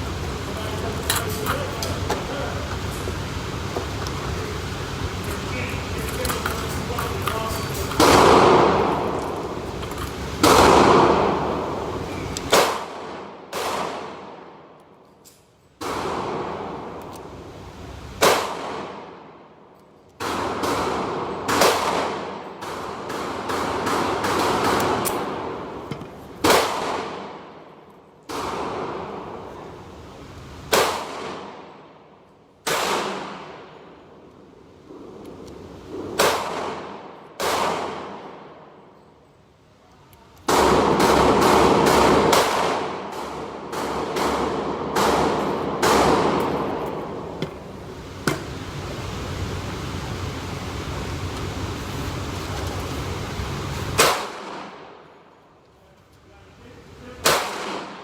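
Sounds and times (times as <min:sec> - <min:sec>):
gunshots with echoing decay: 0:08.0 - 0:09.2, 0:12.5 - 0:14.5, 0:20.2 - 0:25.8, 0:26.4 - 0:27.6, 0:30.7 - 0:31.9, 0:32.6 - 0:33.8, 0:36.0 - 0:38.7, 0:40.5 - 0:47.4, 0:54.0 - 0:55.1, 0:57.2 - 0:58.0.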